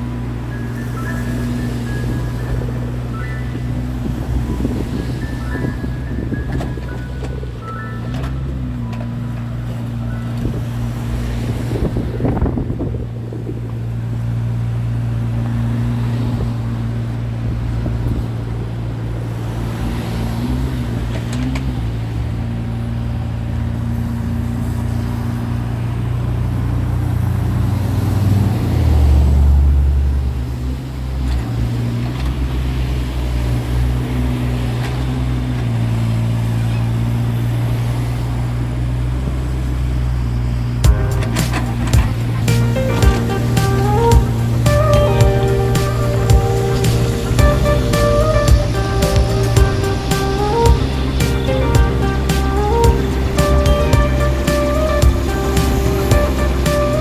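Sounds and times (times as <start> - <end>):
excavator engine running: 0.0 - 57.0.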